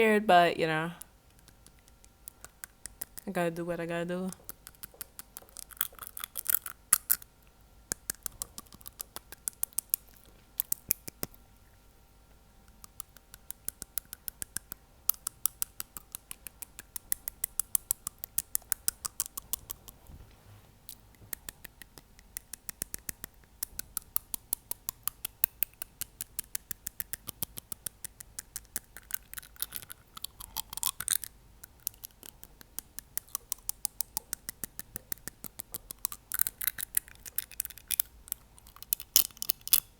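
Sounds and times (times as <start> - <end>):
fingernail tapping on teeth: 1.3 - 3.2, 4.3 - 7.2, 7.9 - 11.4, 12.7 - 20.0, 20.9 - 30.4, 31.6 - 37.8.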